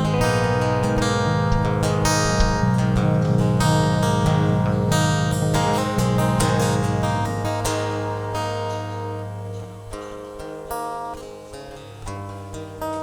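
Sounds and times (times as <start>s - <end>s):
low bass line: 0.0s - 7.6s
strummed guitar chords: 0.0s - 13.0s
percussive hits: 1.4s - 3.0s.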